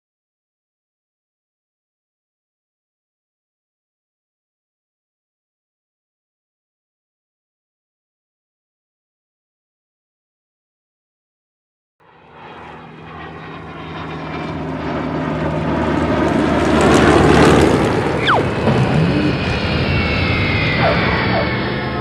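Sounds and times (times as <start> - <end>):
propeller airplane engine passing: 12.0 - 22.0
short falling whistle: 18.2 - 18.6, 19.8 - 22.0.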